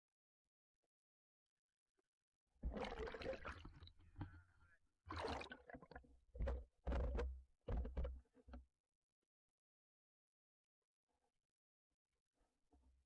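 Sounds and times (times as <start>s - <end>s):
water sloshing and gurgling: 2.6s - 4.4s, 5.1s - 8.2s.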